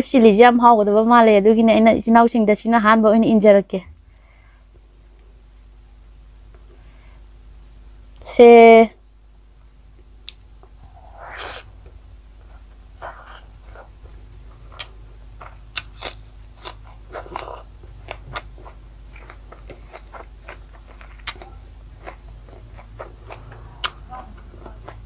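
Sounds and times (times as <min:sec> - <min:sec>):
wet chewing clicks and smacks: 0:14.6 - 0:25.0.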